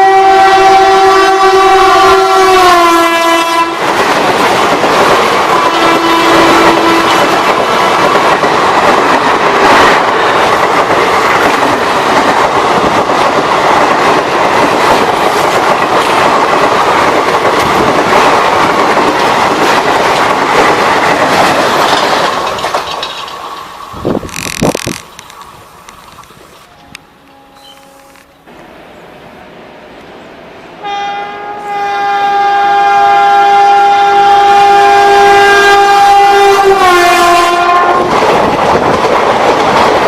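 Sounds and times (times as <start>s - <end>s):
train passing at speed: 0.0s - 40.0s
wheels clacking over rail joints: 3.8s - 28.6s, 37.5s - 40.0s.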